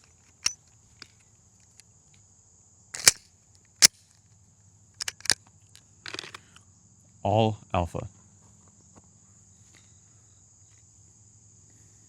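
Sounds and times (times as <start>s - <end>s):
insect buzz: 8.2s - 12.0s.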